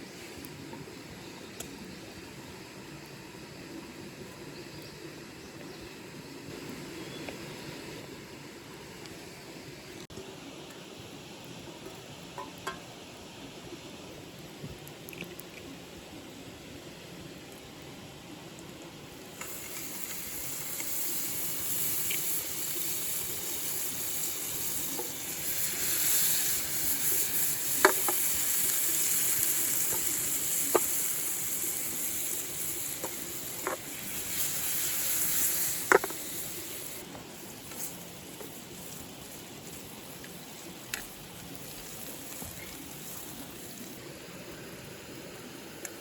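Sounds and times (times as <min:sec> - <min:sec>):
food sizzling in a frying pan: 0:19.1 - 0:44.0.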